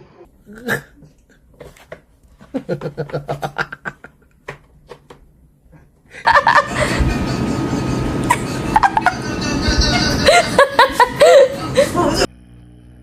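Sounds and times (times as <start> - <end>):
person chuckling: 2.4 - 4.5, 5.8 - 12.3.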